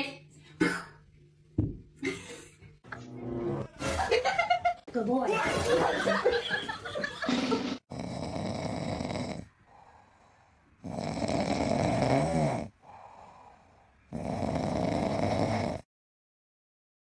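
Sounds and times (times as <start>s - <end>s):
pet snoring loudly: 7.8s - 15.9s.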